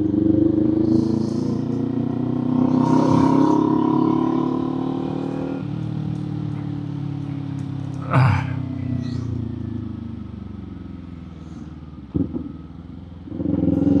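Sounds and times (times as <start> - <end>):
motorcycle engine and exhaust: 0.0 - 14.0.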